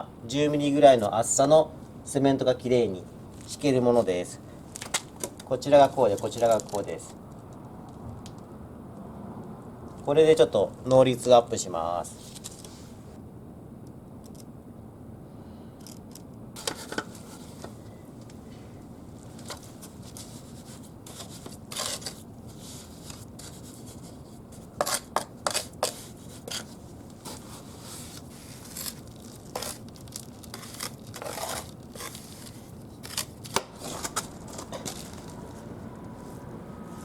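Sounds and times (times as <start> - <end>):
tool scraping wet mortar: 20.1 - 24.1, 24.8 - 26.7, 27.3 - 29.8, 30.5 - 35.1.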